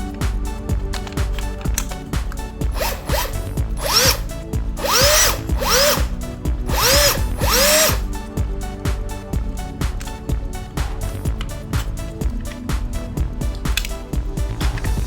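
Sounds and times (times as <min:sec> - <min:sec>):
background music with steady beat: 0:00.0 - 0:15.0
cordless drill motor whine: 0:02.7 - 0:06.1, 0:06.7 - 0:08.1.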